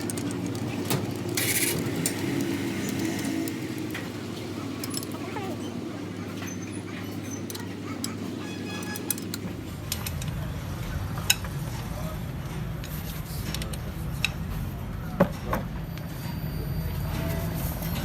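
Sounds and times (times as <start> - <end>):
metal tools clinking: 0.0 - 10.2.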